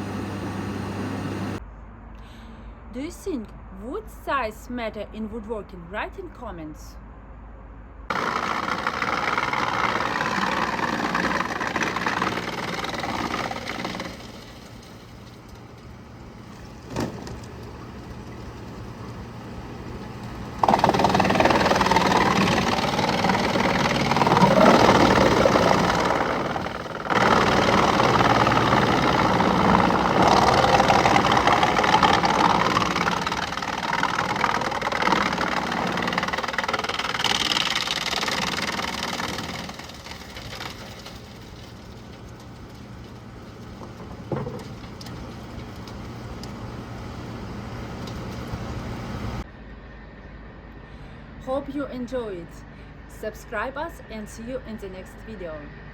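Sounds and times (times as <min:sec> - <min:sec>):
wood-processing machinery humming: 0:00.0 - 0:01.6, 0:08.1 - 0:49.5.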